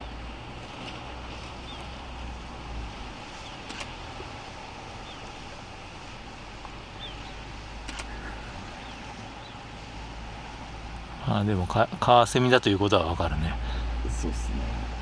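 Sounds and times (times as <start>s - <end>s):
sea noise: 0.0s - 15.0s
wind: 0.0s - 15.0s
sharp clicks: 3.6s - 4.0s, 7.8s - 8.2s.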